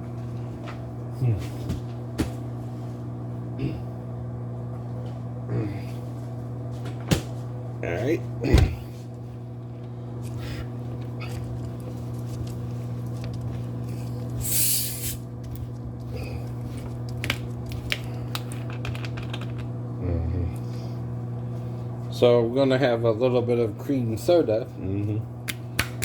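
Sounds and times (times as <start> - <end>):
low hum: 7.5 - 22.0
soda can fizzing hiss: 14.4 - 15.2.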